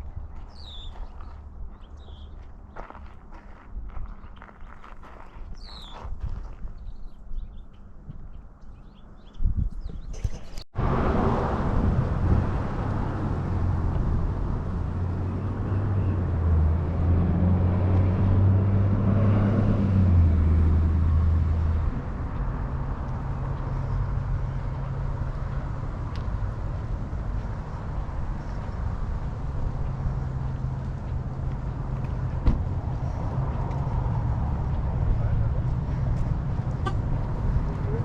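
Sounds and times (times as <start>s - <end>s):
road noise: 0.0s - 38.0s
car engine hum: 10.8s - 38.0s.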